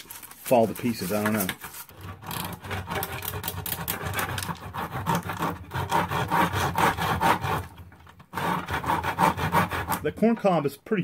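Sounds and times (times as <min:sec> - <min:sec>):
saw cutting corn cob: 0:00.0 - 0:10.4.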